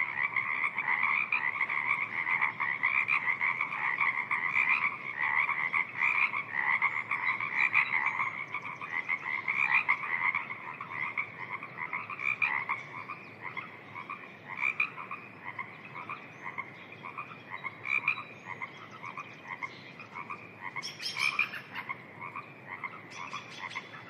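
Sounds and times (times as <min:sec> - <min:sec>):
frogs croaking: 0:00.0 - 0:24.0.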